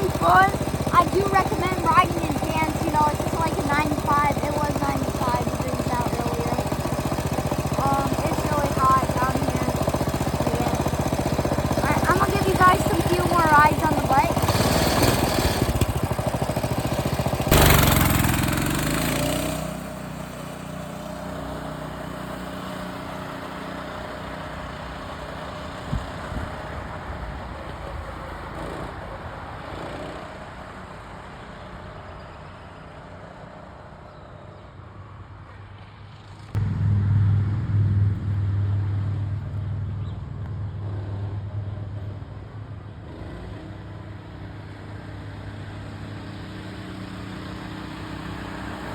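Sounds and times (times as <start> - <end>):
mini bike engine revving: 0.0 - 31.9, 43.0 - 48.9.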